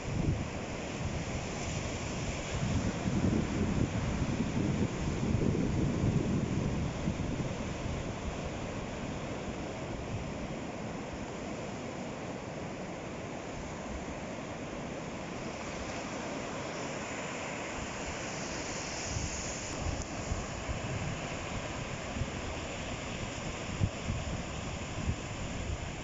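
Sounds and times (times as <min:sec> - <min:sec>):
wind on microphone: 0:00.0 - 0:10.4, 0:17.8 - 0:26.0
ocean waves washing ashore: 0:00.0 - 0:26.0.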